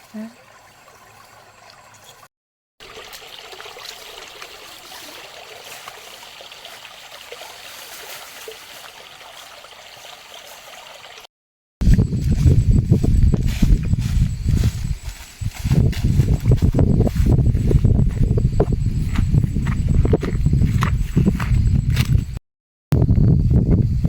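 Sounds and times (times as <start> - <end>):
stream trickling: 0.0 - 11.3.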